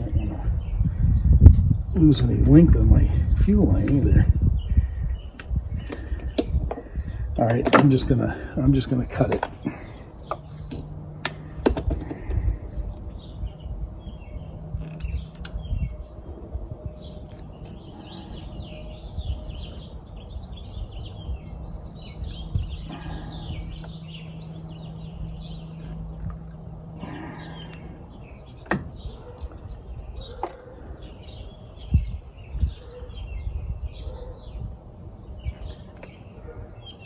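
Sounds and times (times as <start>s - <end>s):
small birds chirping: 0.0s - 37.0s
hand tools clicking and knocking: 7.5s - 8.2s, 9.2s - 12.3s.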